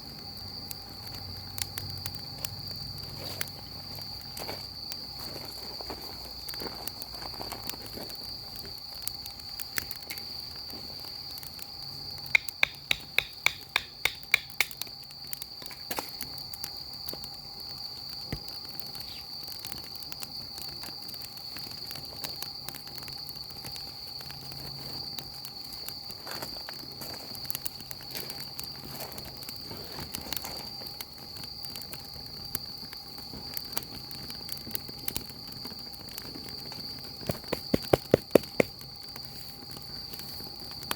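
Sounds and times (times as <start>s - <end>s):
insect trill: 0.0s - 40.9s
wood fire crackling: 0.0s - 40.9s.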